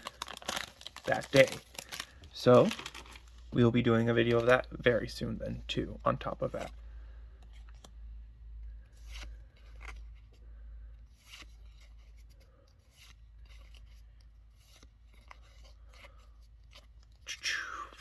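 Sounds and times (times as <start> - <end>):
foil pack crinkling: 0.0 - 4.8
cards rustling: 0.0 - 18.0.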